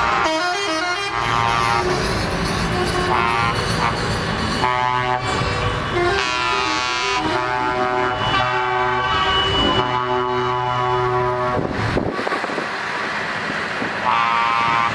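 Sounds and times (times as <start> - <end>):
truck air horns: 0.0 - 11.8, 14.0 - 14.9
truck engines running: 0.0 - 14.9.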